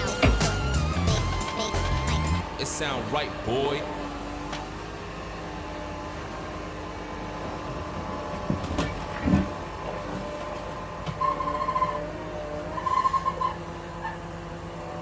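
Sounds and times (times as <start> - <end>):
pulsing high tone: 0.0 - 3.9
diesel engine running under load: 0.0 - 15.0.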